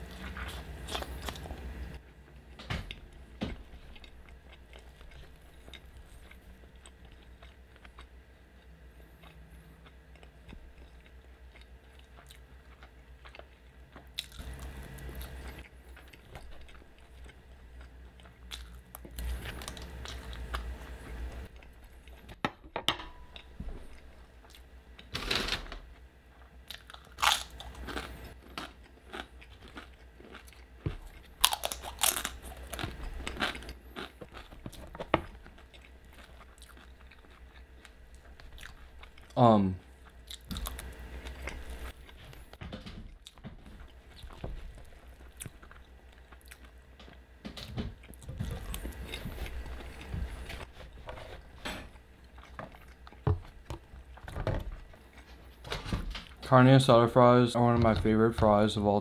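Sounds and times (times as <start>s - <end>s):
chewing with mouth clicks: 3.7s - 20.8s, 26.4s - 42.5s, 43.2s - 47.2s, 52.2s - 55.4s.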